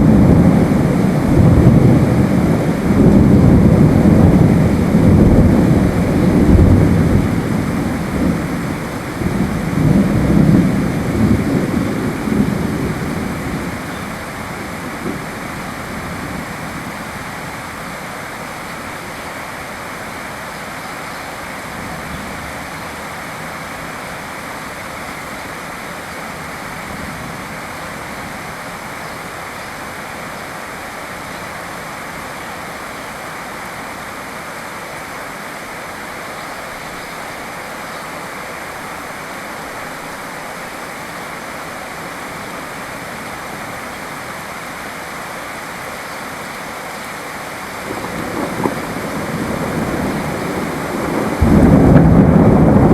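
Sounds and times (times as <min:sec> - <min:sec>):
thunder rumbling: 0:00.0 - 0:17.1, 0:47.8 - 0:52.9
steady rain: 0:00.0 - 0:52.9.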